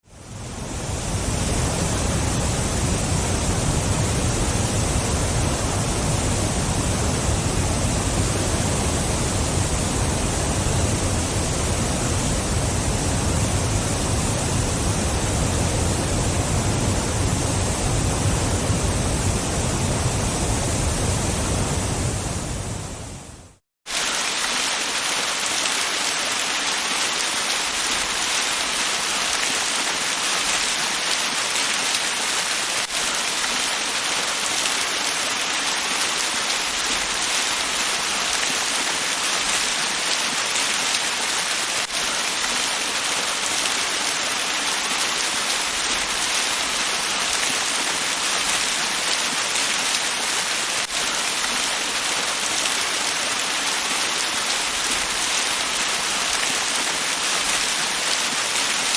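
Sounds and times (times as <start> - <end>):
waterfall splashing: 23.9 - 58.9.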